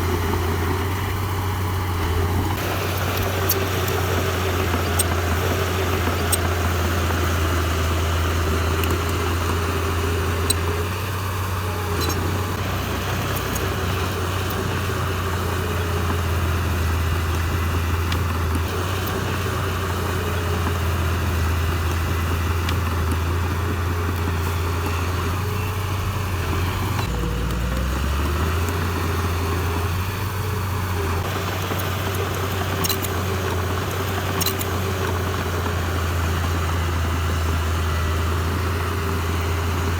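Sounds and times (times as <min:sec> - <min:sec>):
heavy machinery diesel engine: 0:00.0 - 0:39.9
faint clicks: 0:31.0 - 0:35.7.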